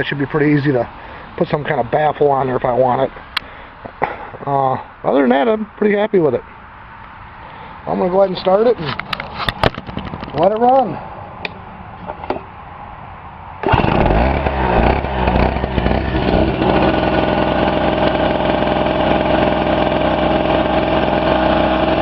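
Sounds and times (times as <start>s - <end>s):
generator engine running: 13.6s - 22.0s.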